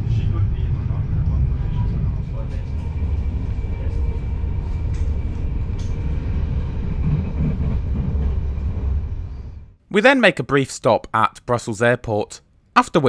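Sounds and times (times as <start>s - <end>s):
wheels rumbling on rails: 0.0s - 9.8s.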